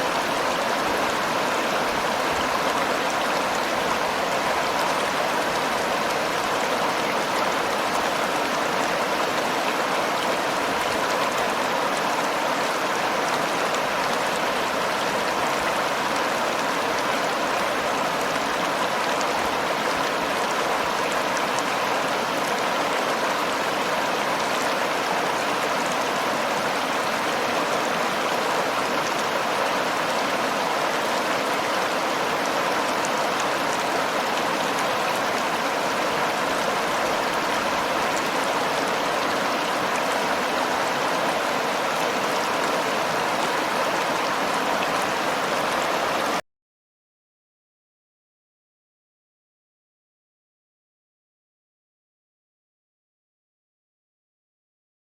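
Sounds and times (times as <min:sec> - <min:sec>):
river water flowing: 0:00.0 - 0:46.4.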